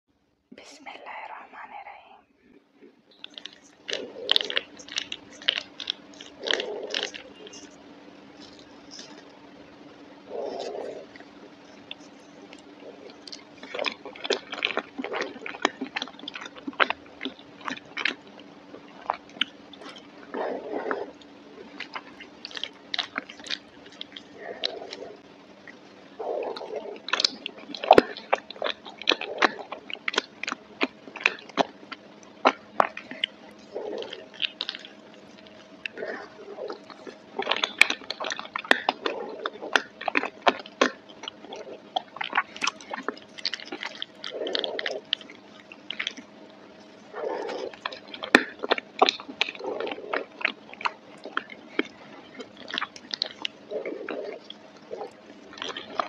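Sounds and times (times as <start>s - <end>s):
chewing: 2.8s - 9.6s, 10.2s - 56.0s
wet mouth clicks and smacks: 3.2s - 7.7s, 26.6s - 36.0s, 36.7s - 46.3s, 47.3s - 56.0s.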